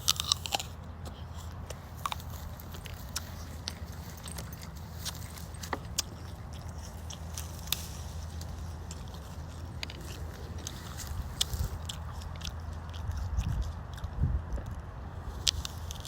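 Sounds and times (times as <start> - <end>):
person chewing apple: 0.0 - 16.0.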